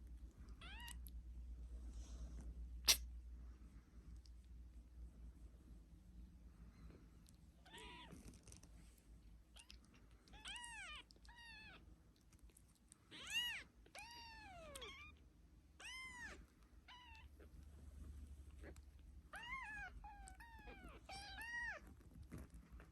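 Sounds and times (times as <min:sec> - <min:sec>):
kitten meowing: 0:07.6 - 0:08.2, 0:10.4 - 0:11.8, 0:13.1 - 0:15.2, 0:15.8 - 0:17.3, 0:19.3 - 0:21.8.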